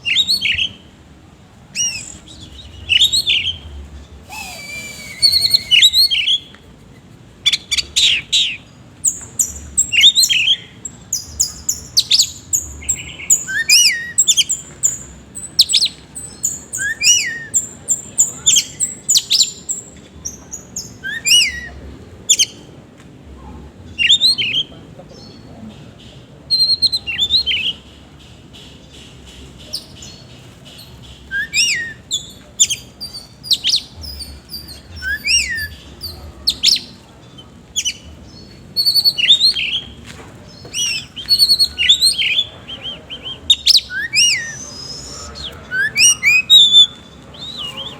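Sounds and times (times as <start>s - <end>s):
songbird singing whistles and chips: 1.7s - 3.6s, 4.2s - 6.7s, 7.4s - 20.0s, 20.8s - 21.7s, 26.5s - 27.8s, 29.3s - 47.9s.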